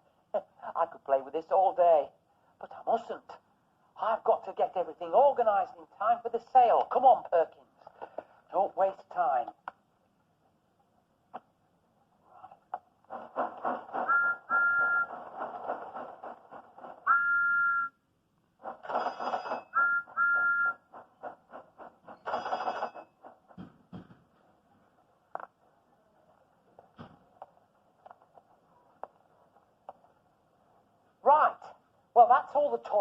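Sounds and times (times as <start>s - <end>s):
steam locomotive chuffing: 13.1s - 17.1s
two-note whistle toots: 14.1s - 15.1s, 17.1s - 18.0s, 19.7s - 20.8s.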